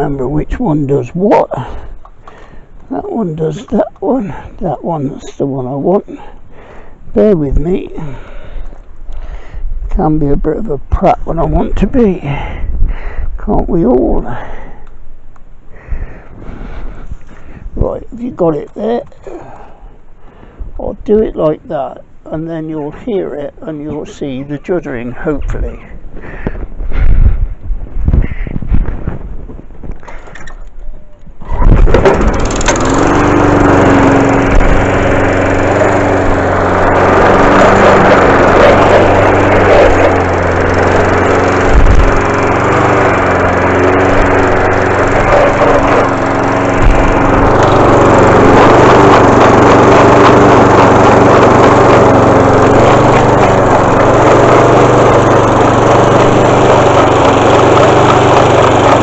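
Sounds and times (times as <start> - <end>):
lawnmower engine running: 0.0 - 12.6, 16.0 - 26.7, 31.4 - 59.0.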